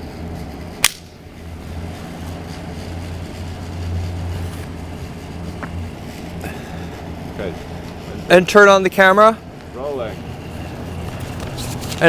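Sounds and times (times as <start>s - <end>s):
low mechanical hum: 0.0s - 12.0s
sharp click: 0.8s - 1.2s.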